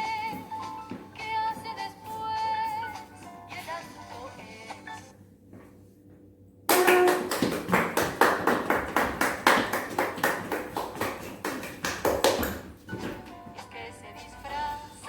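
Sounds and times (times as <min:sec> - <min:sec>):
fast hand clapping: 0:06.7 - 0:12.8.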